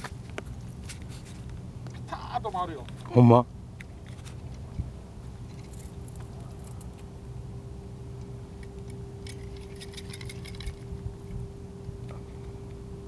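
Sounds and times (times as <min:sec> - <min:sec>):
steady low hum: 0:00.0 - 0:13.0
light clicking and clinking: 0:08.2 - 0:11.4.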